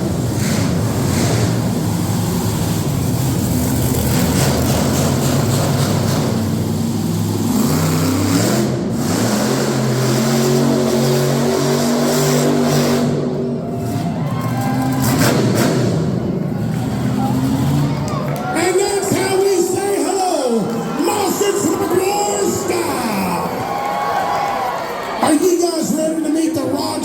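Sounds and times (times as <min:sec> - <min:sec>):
monster truck engine revving: 0:00.0 - 0:25.6.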